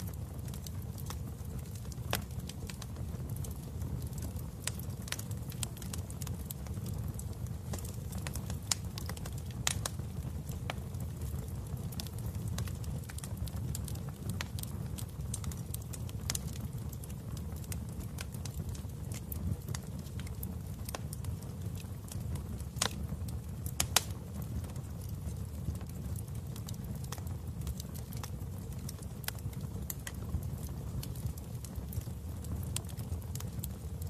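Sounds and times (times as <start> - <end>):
wood fire crackling: 0.0 - 34.0
sharp pops and snaps: 22.7 - 23.0, 23.7 - 24.2.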